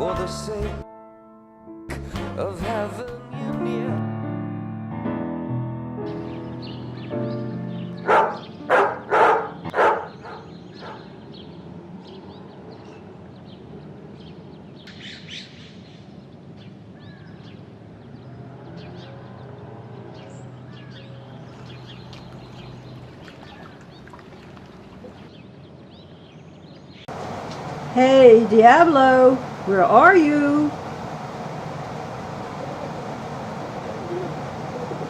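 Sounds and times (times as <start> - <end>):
low steady hum: 27.1 - 35.0.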